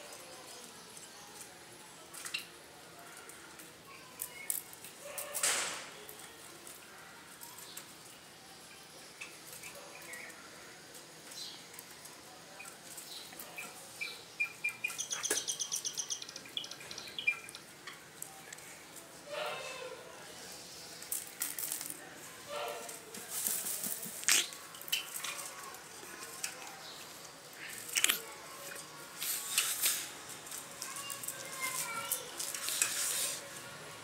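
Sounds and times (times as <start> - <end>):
bird chirps: 13.6 - 17.6
rapid chattering bird notes: 14.0 - 17.6
scratchy rustle: 27.7 - 33.8.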